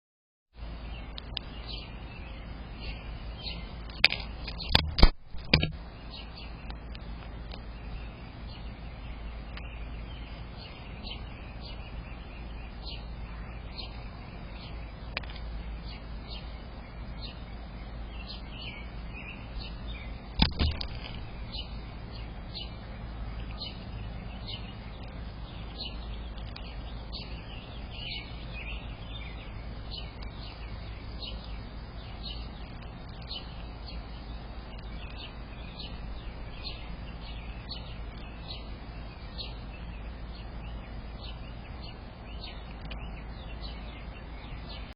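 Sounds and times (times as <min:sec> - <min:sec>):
birds chirping: 0:00.6 - 0:44.9
microphone hum: 0:04.6 - 0:05.8.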